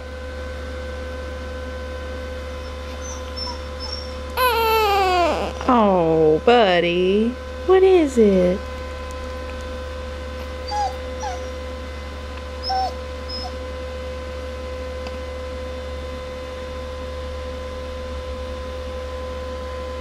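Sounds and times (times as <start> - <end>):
steady background hum: 0.0 - 20.0
dog whining: 2.6 - 5.8, 10.6 - 11.6, 12.6 - 13.6.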